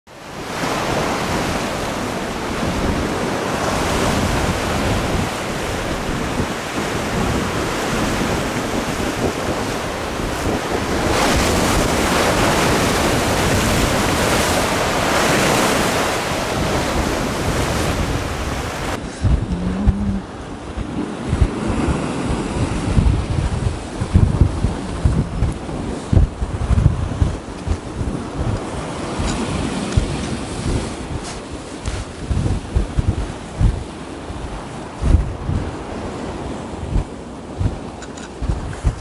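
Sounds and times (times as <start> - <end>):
waves breaking on rocks: 0.1 - 39.0
wind buffeting microphone: 0.1 - 39.0
short low hum: 19.0 - 20.4.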